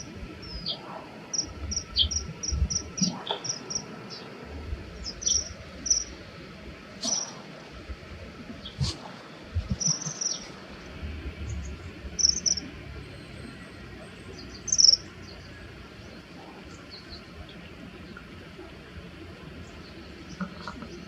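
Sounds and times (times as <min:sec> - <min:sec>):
kingfishers shrill calls: 0:07.0 - 0:07.4.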